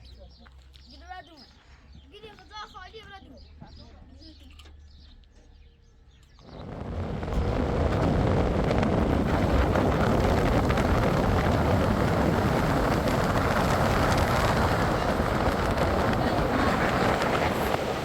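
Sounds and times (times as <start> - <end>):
fast river rushing: 7.0 - 18.0.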